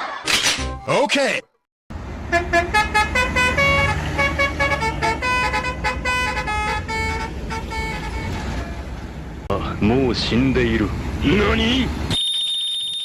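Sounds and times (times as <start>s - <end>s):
vehicle engine rumble: 1.9s - 12.1s
musical air horn tune: 2.3s - 8.6s.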